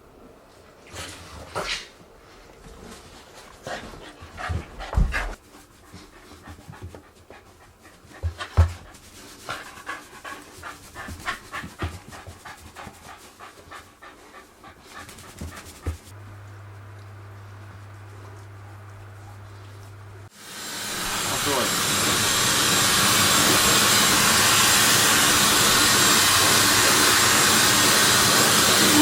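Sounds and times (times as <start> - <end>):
dog panting: 3.0 - 16.1.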